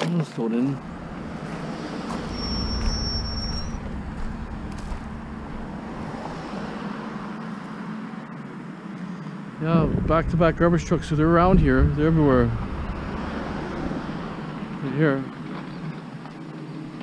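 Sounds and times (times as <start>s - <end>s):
vehicle low rumble: 0.6s - 7.7s, 9.6s - 17.0s
brief high whistle: 2.1s - 4.0s.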